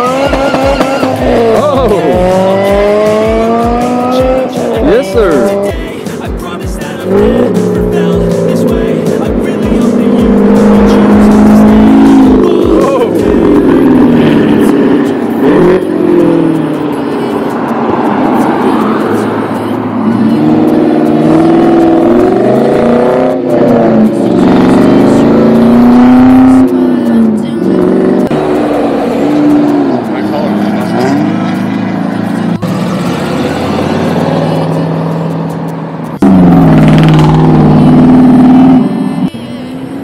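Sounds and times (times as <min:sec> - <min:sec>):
car engines revving: 0:00.0 - 0:40.0.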